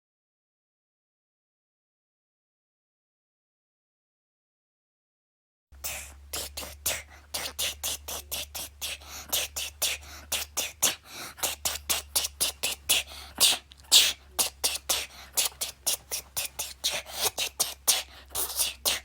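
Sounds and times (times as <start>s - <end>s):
person beatboxing: 5.8s - 19.0s
steady low hum: 5.8s - 19.0s.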